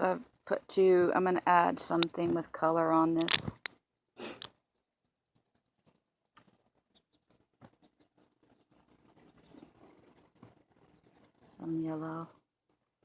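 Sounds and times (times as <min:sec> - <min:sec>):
faint clicks: 0:03.2 - 0:03.7.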